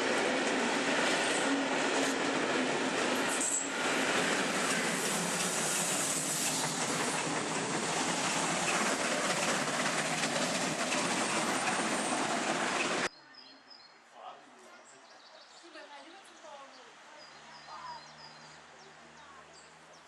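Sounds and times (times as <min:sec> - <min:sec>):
train wheels rushing on rails: 0:00.0 - 0:13.1
clickety-clack over rail joints: 0:04.2 - 0:13.1.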